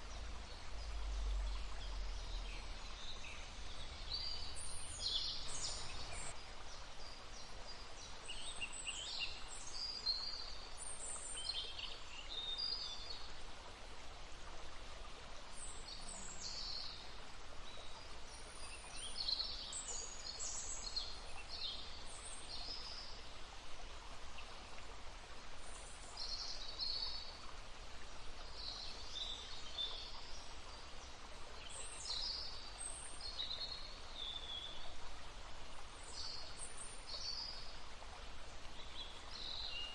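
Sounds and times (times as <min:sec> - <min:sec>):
babbling brook rushing: 0:00.0 - 0:39.9
songbirds chirping: 0:00.0 - 0:39.9.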